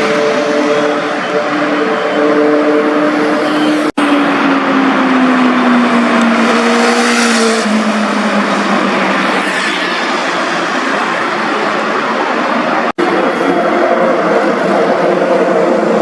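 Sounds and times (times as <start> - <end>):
motorcycle passing by at speed: 6.3 - 8.5.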